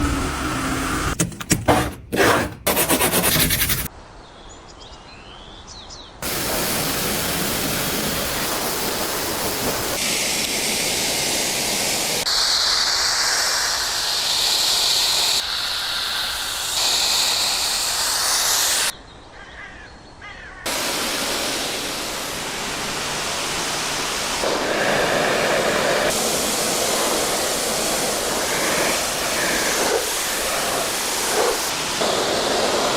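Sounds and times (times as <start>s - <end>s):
hissing rushing noise: 6.2s - 18.9s, 20.7s - 32.9s.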